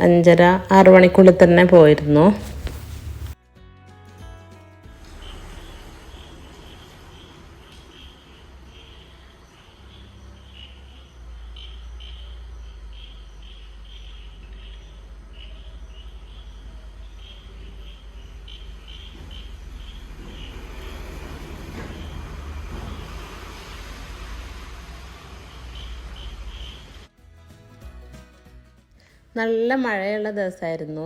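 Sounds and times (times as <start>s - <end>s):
low rumble: 4.9s - 27.1s
crickets chirping: 5.0s - 27.1s.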